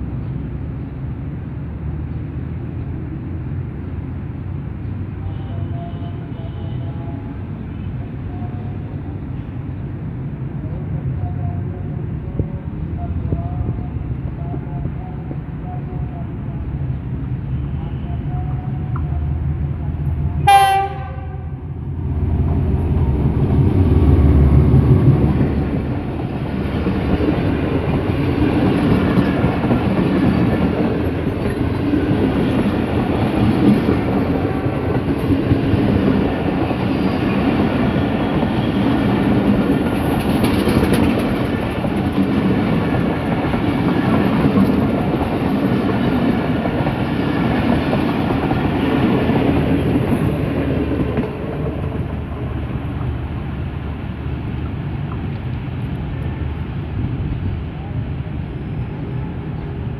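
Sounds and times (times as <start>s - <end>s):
locomotive passing rumble: 0.0s - 59.9s
diesel locomotive horn blast: 5.2s - 8.9s, 17.4s - 19.3s, 20.3s - 21.8s
wheels clacking over rail joints: 22.1s - 53.5s.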